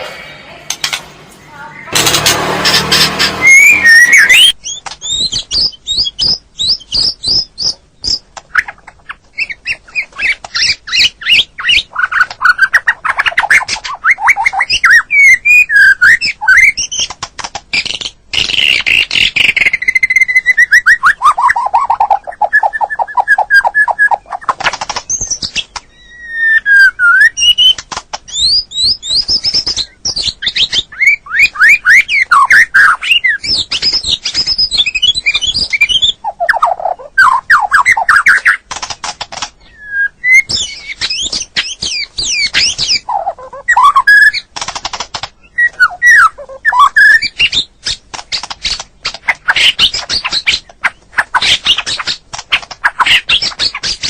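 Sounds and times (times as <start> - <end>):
bird song whistled phrases: 3.2 - 8.8, 9.4 - 17.0, 25.2 - 38.6, 39.6 - 44.5, 45.4 - 47.6
harsh chattering clicks: 16.2 - 25.9, 27.3 - 30.3, 32.4 - 39.6, 40.3 - 54.0.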